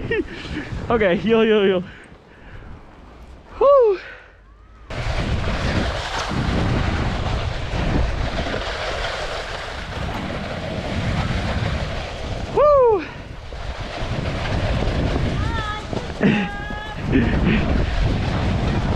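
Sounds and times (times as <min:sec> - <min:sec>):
wind buffeting microphone: 0:00.0 - 0:18.9
snowboard sliding over snow: 0:04.9 - 0:18.9.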